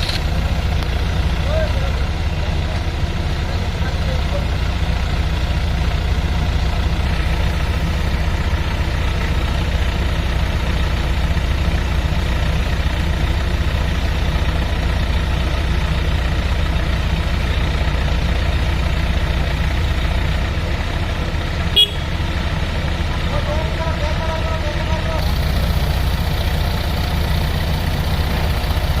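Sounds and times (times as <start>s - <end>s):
sharp click: 0.0s - 0.9s
diesel engine droning: 0.0s - 29.0s.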